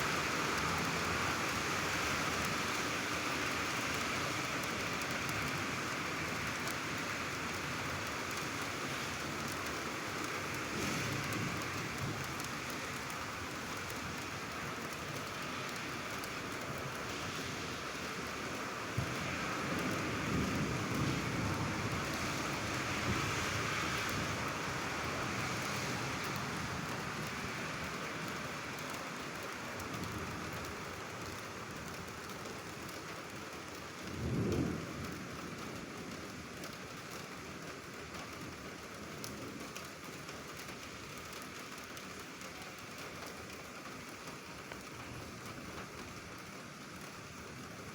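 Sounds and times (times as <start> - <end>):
steady rain falling: 0.0 - 47.9
low rumble of thunder: 19.0 - 24.4, 34.1 - 36.6.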